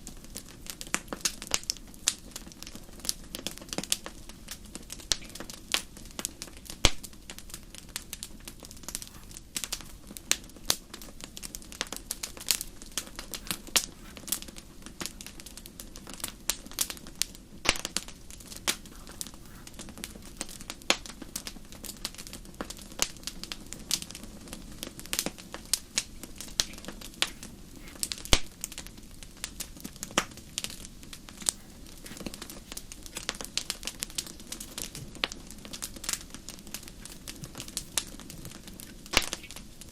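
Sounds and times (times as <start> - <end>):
wood fire crackling: 7.8 - 22.7, 23.4 - 39.9.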